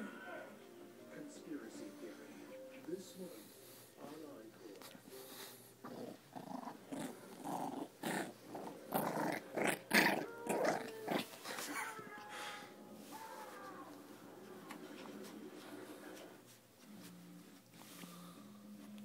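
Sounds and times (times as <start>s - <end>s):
puppy growling: 5.8s - 12.7s.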